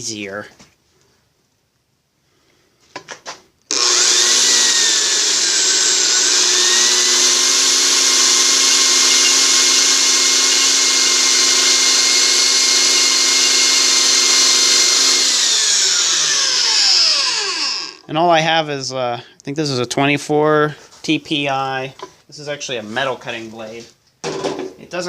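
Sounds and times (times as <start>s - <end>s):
bandsaw motor whine cutting wood: 3.7s - 18.1s.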